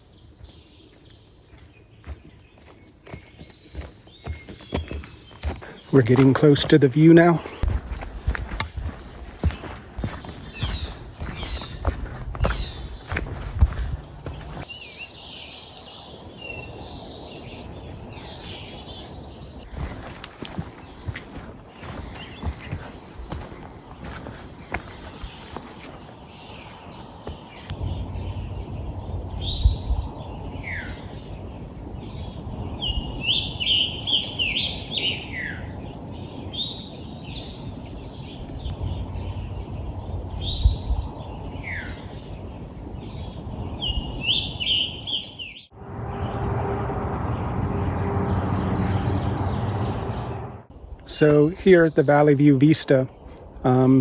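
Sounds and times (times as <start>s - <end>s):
songbirds singing: 0.0s - 54.0s
low rumble: 27.7s - 33.7s, 38.2s - 44.6s.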